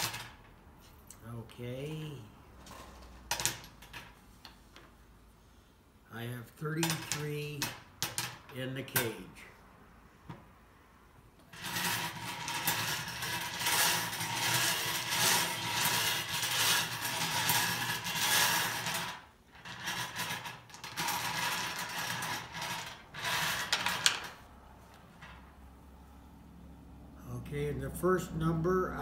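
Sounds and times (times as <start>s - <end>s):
balls clattering in spinning cage: 0.0s - 0.6s, 6.7s - 9.1s, 11.5s - 24.4s.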